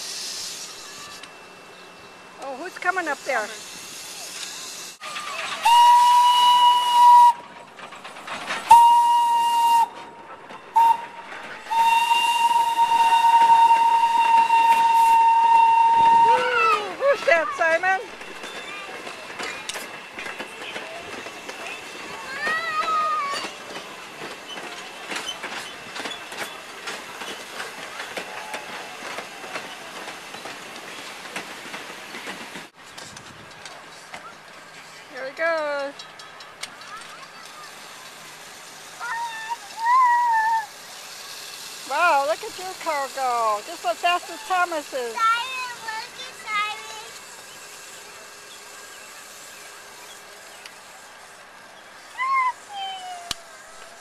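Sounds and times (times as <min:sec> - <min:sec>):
hissing steam: 0:00.0 - 0:01.7, 0:02.3 - 0:35.5, 0:36.5 - 0:54.0
train rolling: 0:00.0 - 0:54.0
wheels clicking and rattling: 0:02.3 - 0:54.0
steam train whistle blasts: 0:05.6 - 0:07.4, 0:08.7 - 0:09.9, 0:10.7 - 0:16.6.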